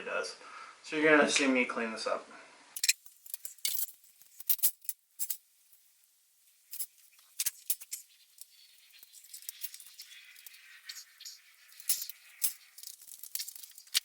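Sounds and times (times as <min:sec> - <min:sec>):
tools clicking and tapping: 0:02.8 - 0:05.4, 0:06.7 - 0:14.0.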